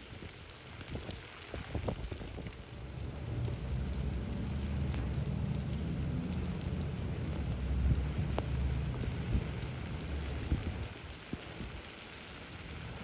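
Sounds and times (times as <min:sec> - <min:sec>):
rain on a street: 0:00.0 - 0:13.0
steady low rumble: 0:01.9 - 0:11.0.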